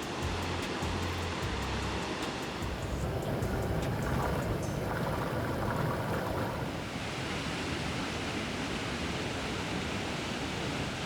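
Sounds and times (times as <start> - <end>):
water rushing over falls: 2.5 - 11.0.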